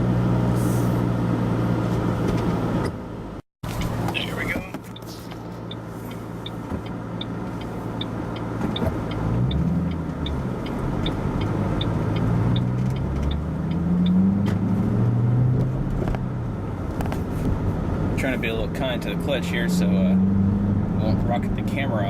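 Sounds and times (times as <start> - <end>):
car engine accelerating: 0.0 - 22.0
turn signal ticking: 3.6 - 17.2.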